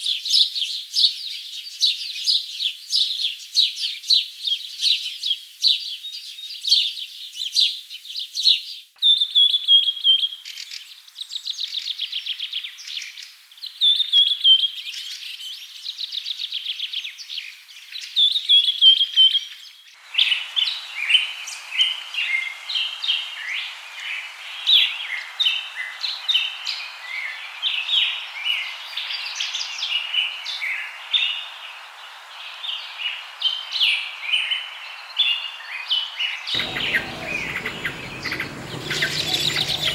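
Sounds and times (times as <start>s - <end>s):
steady hiss: 20.0s - 34.9s, 36.6s - 39.9s
birds chirping: 36.6s - 39.9s
birds trilling: 36.6s - 39.9s.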